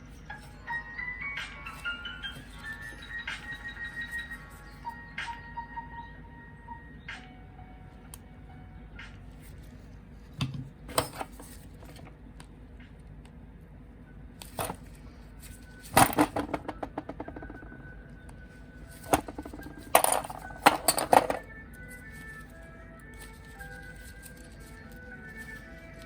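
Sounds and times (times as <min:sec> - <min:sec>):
faint background music: 0:00.0 - 0:26.0
plastic parts clicking and clattering: 0:10.4 - 0:12.2, 0:14.4 - 0:17.8, 0:18.9 - 0:26.0.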